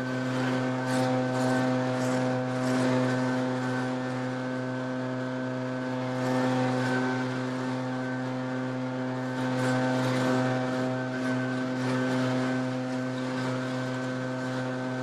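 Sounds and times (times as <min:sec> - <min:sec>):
leaf blower engine running: 0:00.0 - 0:15.0.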